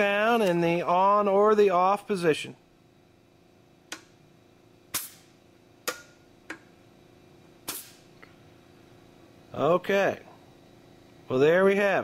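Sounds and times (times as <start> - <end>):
faint steady hum: 0.0 - 12.0
puff of released air: 7.7 - 8.1.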